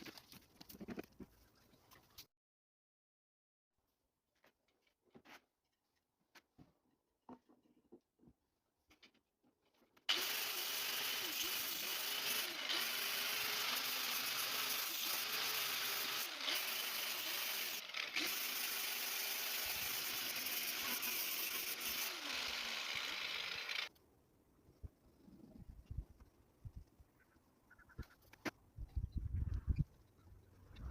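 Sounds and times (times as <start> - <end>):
electric power tool running: 10.1 - 23.9.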